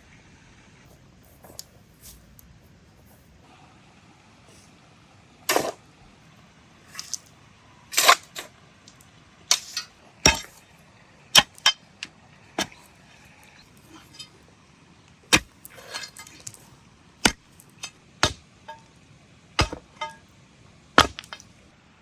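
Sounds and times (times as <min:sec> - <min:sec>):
short scrapes: 0:15.3 - 0:16.6
sharp knocks: 0:17.2 - 0:18.8, 0:19.6 - 0:20.2, 0:21.0 - 0:21.4.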